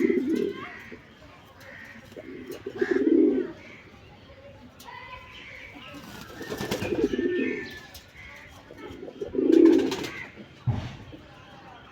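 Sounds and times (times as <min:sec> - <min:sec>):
pigeons cooing: 0:00.0 - 0:03.9, 0:05.3 - 0:10.6.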